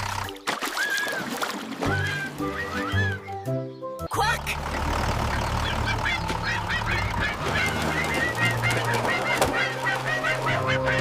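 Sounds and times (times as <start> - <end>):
geese honking: 1.8 - 3.5, 4.5 - 11.0.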